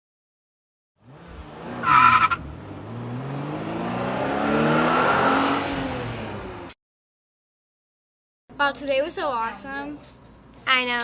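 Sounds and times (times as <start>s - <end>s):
car engine revving: 1.0s - 6.8s.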